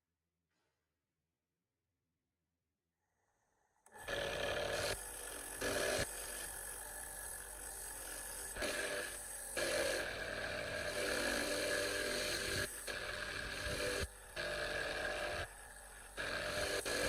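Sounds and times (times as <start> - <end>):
power tool whining: 3.9 - 17.0.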